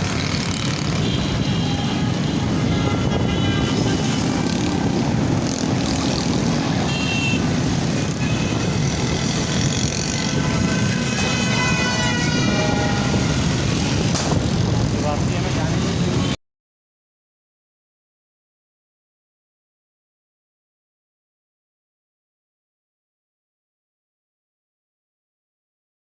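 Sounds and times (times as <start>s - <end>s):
motorbike engine and road rumble: 0.0s - 16.3s
high-pitched horns tooting: 0.7s - 4.9s, 6.7s - 14.1s.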